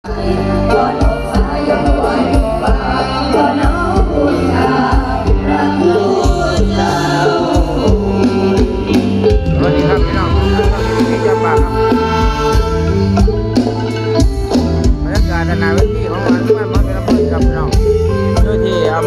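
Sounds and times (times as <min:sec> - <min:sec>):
person singing: 0:00.0 - 0:13.9
bass: 0:00.0 - 0:19.0
steady drum beat: 0:00.1 - 0:19.0.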